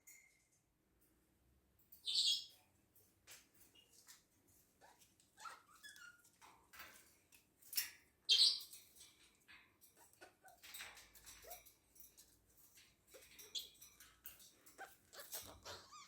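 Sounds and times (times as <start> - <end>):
parrots chirping and calling: 13.1 - 16.0.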